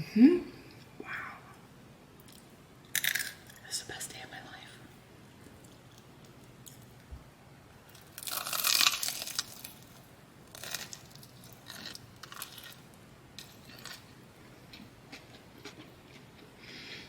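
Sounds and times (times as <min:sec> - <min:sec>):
crunching crispy food: 0:07.9 - 0:14.1.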